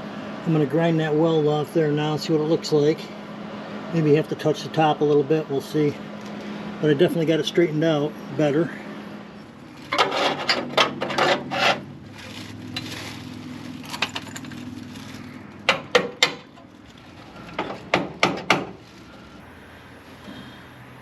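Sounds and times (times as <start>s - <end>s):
angle grinder scraping steel: 9.7s - 13.0s.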